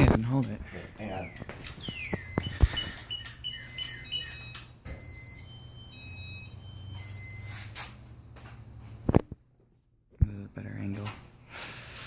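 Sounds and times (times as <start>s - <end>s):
electronic beeps: 1.2s - 7.7s.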